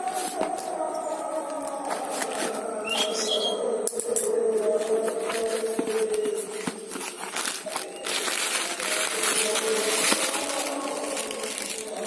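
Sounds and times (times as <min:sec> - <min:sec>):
packaging rustling: 0:04.6 - 0:12.0.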